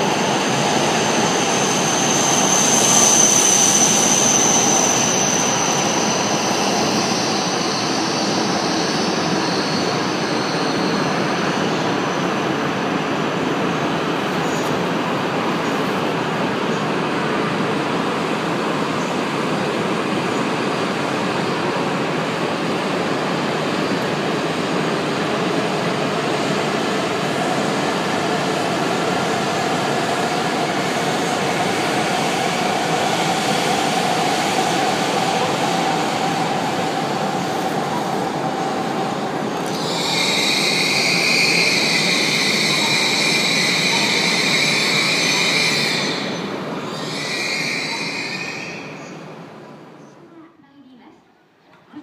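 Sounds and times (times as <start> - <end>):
train wheels rumbling: 0.0 - 49.3.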